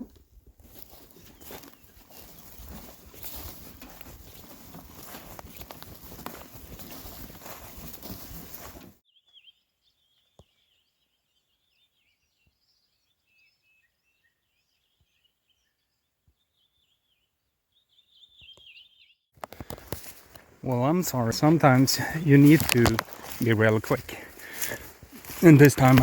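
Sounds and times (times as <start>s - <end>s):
rustling and footsteps: 0.0s - 9.0s, 19.4s - 26.0s
small birds chirping: 0.7s - 19.8s.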